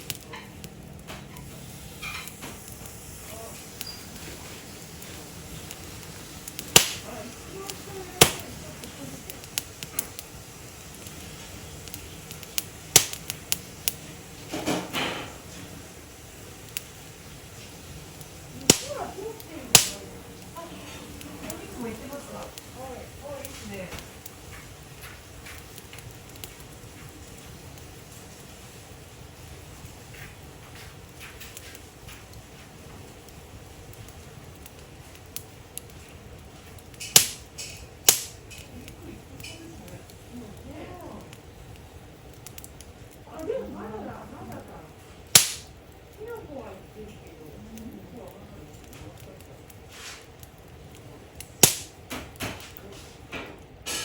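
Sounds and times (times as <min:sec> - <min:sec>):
wood fire crackling: 0:00.0 - 0:54.0
sharp loud cracks: 0:06.6 - 0:07.1, 0:12.9 - 0:13.4, 0:18.7 - 0:18.9, 0:19.8 - 0:20.0, 0:37.0 - 0:38.4, 0:45.3 - 0:45.7, 0:51.6 - 0:52.0.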